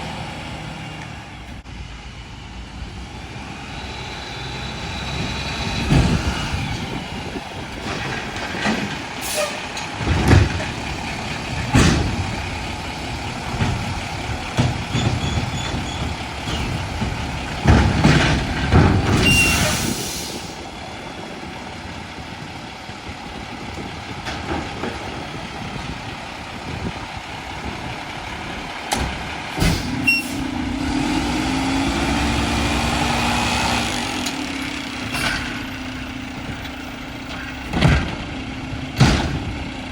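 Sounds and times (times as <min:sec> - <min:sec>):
engine and hydraulic hum: 0:00.0 - 0:39.9
metal knocks and clanks: 0:07.6 - 0:19.7, 0:34.1 - 0:39.9.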